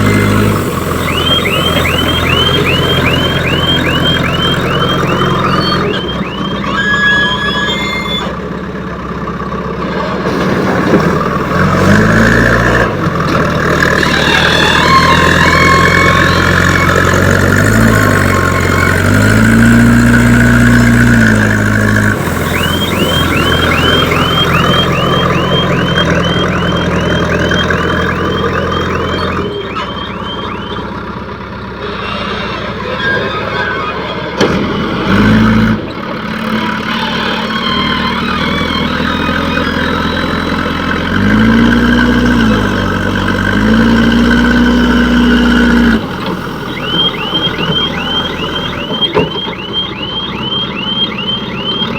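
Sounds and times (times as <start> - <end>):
reversing alarm beeping: 0.0 - 8.3, 14.0 - 31.1, 36.9 - 51.9
diesel engine revving: 0.0 - 51.9.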